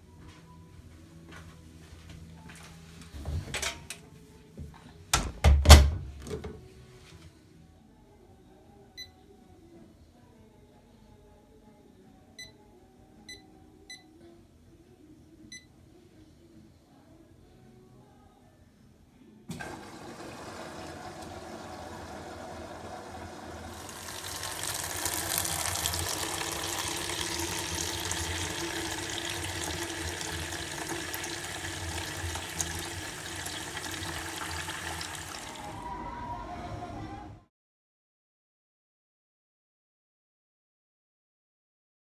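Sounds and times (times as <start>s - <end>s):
water running from tap into sink: 19.5s - 35.8s.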